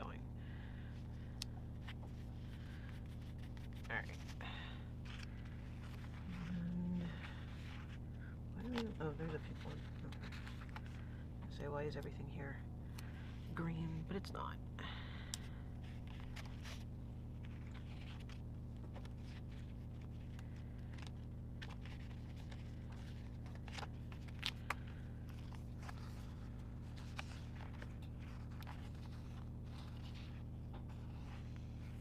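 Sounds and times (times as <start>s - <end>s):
steady low hum: 0.0s - 32.0s
paper stickers rustling: 1.2s - 8.0s, 8.6s - 11.2s, 15.8s - 16.8s, 17.4s - 32.0s.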